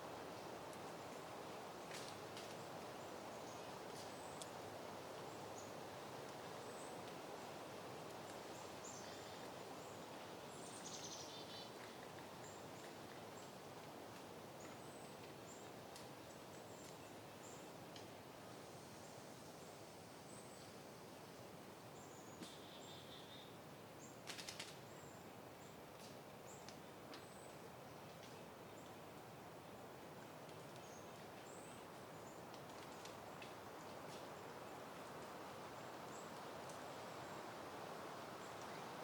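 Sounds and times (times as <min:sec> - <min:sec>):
soft wind: 0:00.0 - 0:39.0
faint bird chirps: 0:22.0 - 0:24.1.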